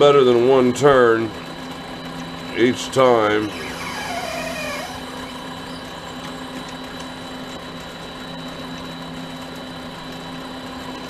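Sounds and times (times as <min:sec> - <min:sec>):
lathe motor whining: 0:03.2 - 0:06.3.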